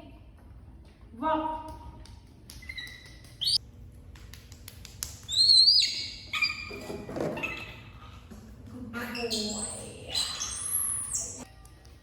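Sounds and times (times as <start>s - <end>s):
baby monkey squealing: 2.6s - 3.6s, 5.3s - 8.2s, 9.1s - 11.4s.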